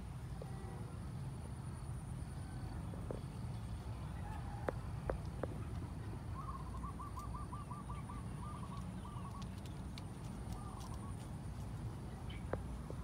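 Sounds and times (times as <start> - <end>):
bird trilling: 6.4 - 9.5.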